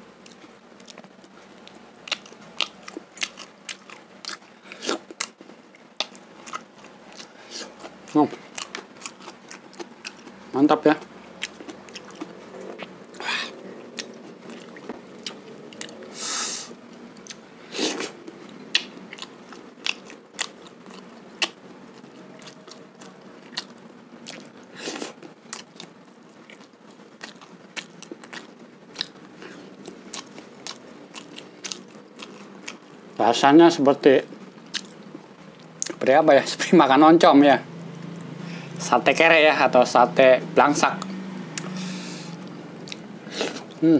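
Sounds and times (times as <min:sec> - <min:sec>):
chewing with wet mouth clicks: 0:00.2 - 0:10.4, 0:11.0 - 0:13.2, 0:13.9 - 0:16.1, 0:17.1 - 0:17.4, 0:18.0 - 0:32.9, 0:34.6 - 0:36.1, 0:41.0 - 0:43.8.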